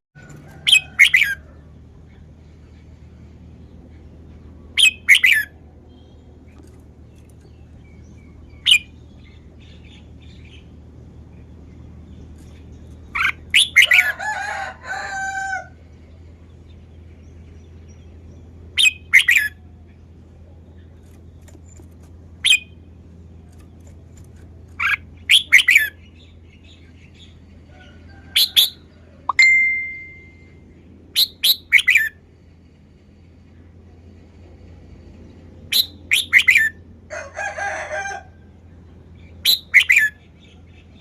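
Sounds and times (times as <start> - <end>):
bulbul singing: 24.8 - 27.4, 28.4 - 32.2.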